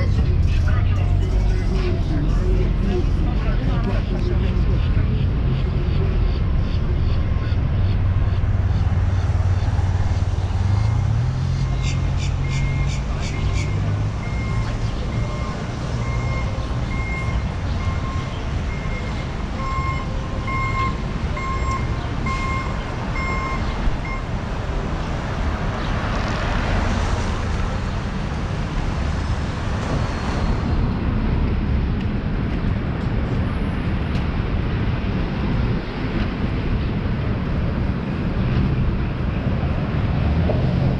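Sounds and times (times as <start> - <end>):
street traffic rumble: 0.0 - 40.9
reversing alarm beeping: 10.7 - 11.8, 12.4 - 13.5, 14.2 - 24.3.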